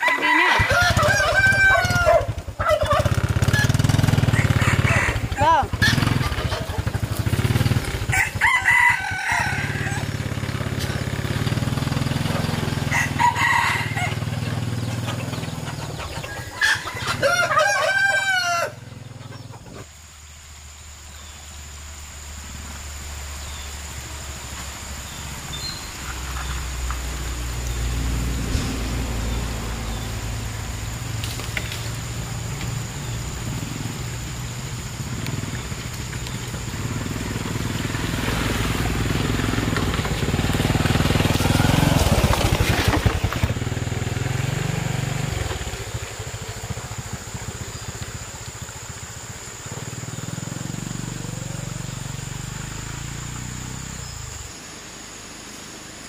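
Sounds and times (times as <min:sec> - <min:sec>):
rooster crowing: 0:00.0 - 0:06.9, 0:08.0 - 0:10.4, 0:12.8 - 0:14.6, 0:15.6 - 0:19.6
motorcycle engine running: 0:00.6 - 0:17.2, 0:24.9 - 0:54.6.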